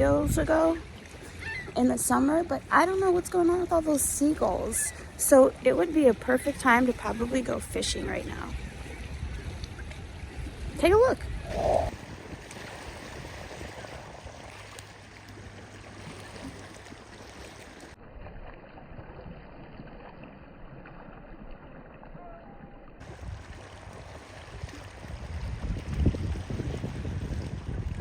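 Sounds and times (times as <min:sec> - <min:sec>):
wind on microphone: 0:00.0 - 0:14.9, 0:23.0 - 0:28.0
lake water washing: 0:00.0 - 0:28.0.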